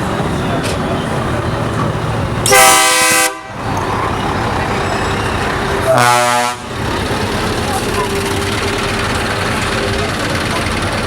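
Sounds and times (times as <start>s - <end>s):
truck engines rumbling: 0.0s - 11.0s
truck air horn blast: 2.5s - 3.6s, 5.8s - 6.7s.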